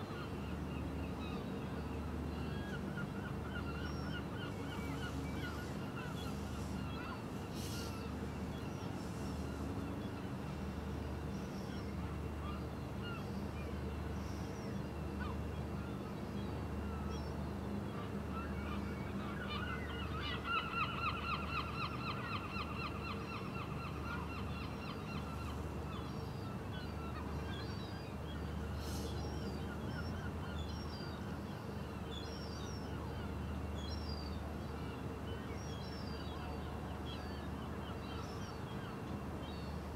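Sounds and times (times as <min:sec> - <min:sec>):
birds calling: 0:00.2 - 0:11.7, 0:19.1 - 0:36.2.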